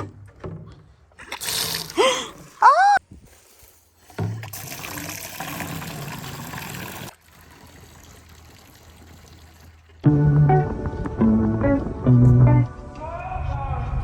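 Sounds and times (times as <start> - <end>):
water running from a tap: 4.5 - 9.8
guitar music: 10.0 - 13.0.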